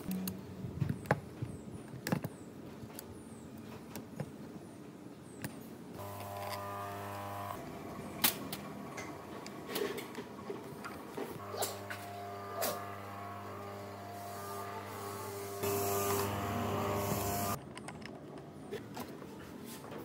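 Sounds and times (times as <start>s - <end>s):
metal clicks of key and bolts: 17.6s - 18.5s.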